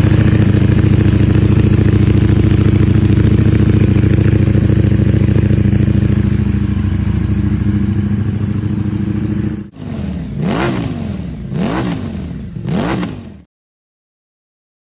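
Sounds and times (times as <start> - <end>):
motorcycle engine idling: 0.0 - 13.5
motorcycle throttle blips: 0.0 - 13.5.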